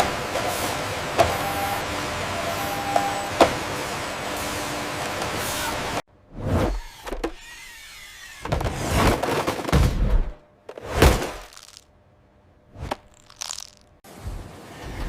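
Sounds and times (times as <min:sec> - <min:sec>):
crashing and knocking noises: 0:08.5 - 0:11.9.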